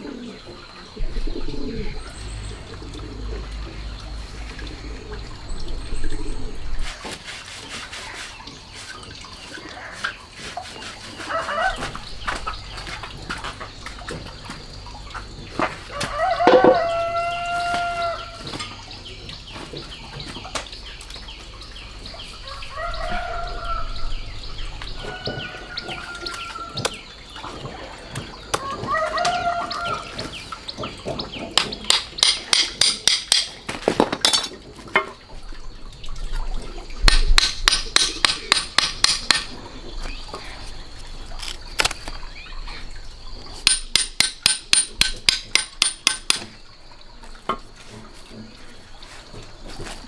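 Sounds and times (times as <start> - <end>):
roosters crowing: 11.2 - 12.1, 15.8 - 18.6, 22.4 - 27.1, 28.5 - 30.5.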